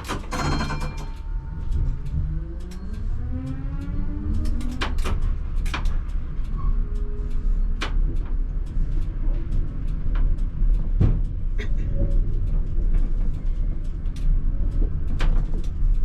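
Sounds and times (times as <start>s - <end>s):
clicks and rattles: 0.0s - 3.0s
tram running gear rumble: 0.0s - 16.0s.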